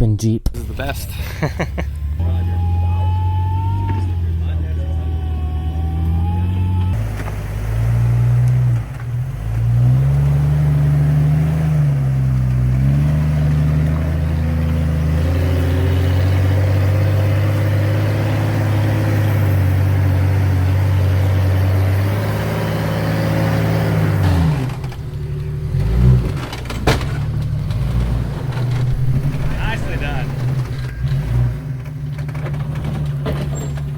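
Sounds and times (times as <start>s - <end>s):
car engine revving: 0.6s - 33.9s
sharp knocks: 24.6s - 31.6s.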